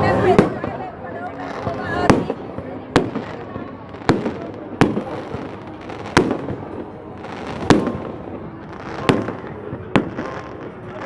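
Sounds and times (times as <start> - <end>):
fireworks bangs: 0.0 - 11.0
fireworks rumble and crackle: 0.0 - 11.0.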